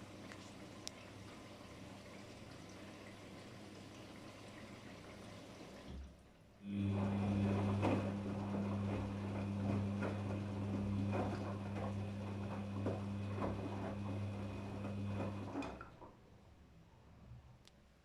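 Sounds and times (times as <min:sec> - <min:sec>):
water and laundry splashing: 0:00.0 - 0:16.1
washing machine motor humming: 0:06.6 - 0:16.1.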